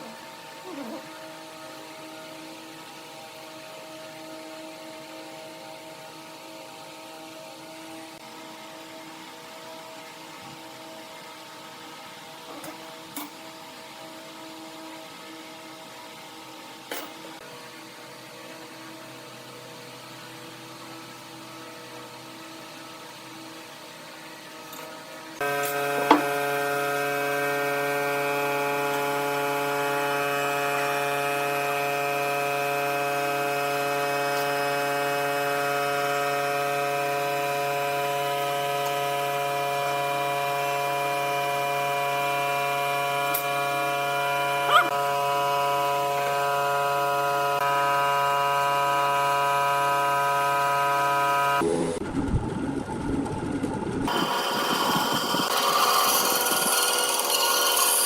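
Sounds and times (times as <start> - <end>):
tool cutting wood: 25.4 - 39.0, 54.1 - 58.0
electric motor hum: 25.4 - 58.0.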